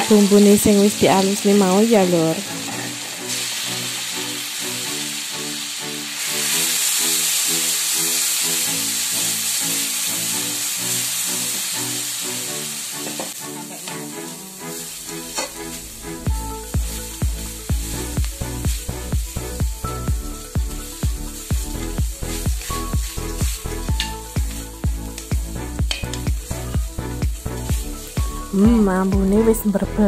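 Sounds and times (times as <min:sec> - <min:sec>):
paste sizzling in hot oil: 0:00.0 - 0:28.9
metal spatula scraping a wok: 0:13.0 - 0:17.0.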